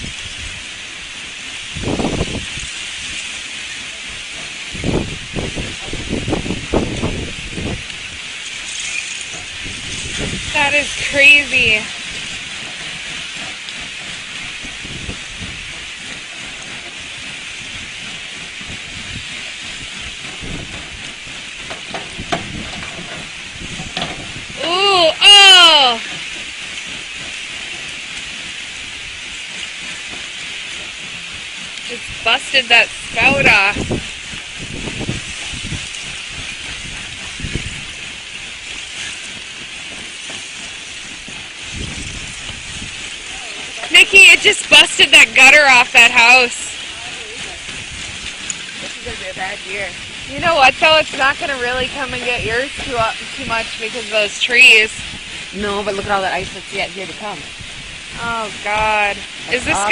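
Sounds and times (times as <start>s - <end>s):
hissing rush: 0.0s - 59.9s
lake ice grinding and crunching: 0.0s - 59.9s
low rumbling: 0.0s - 59.9s
dull low knocks: 12.0s - 24.6s.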